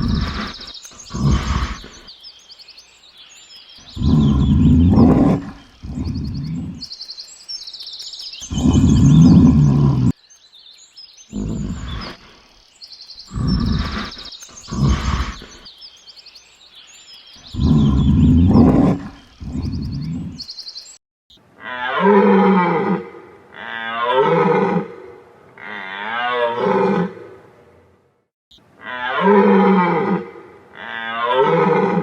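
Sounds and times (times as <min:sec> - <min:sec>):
animal long wavering calls: 0:00.0 - 0:02.1, 0:03.9 - 0:06.9, 0:08.4 - 0:10.2, 0:11.3 - 0:12.4, 0:13.3 - 0:15.6
large animal roaring deeply: 0:00.0 - 0:02.1, 0:04.0 - 0:06.9, 0:08.5 - 0:10.2, 0:11.3 - 0:12.4, 0:13.3 - 0:15.6, 0:17.5 - 0:20.5
birds chirping: 0:00.0 - 0:21.0.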